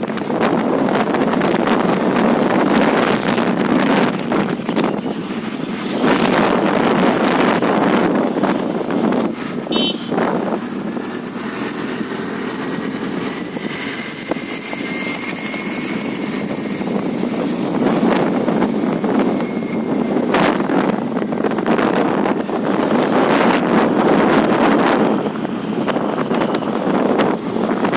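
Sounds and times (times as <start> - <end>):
scooter engine and road noise: 0.0 - 27.9
wind rush on microphone: 0.0 - 27.9.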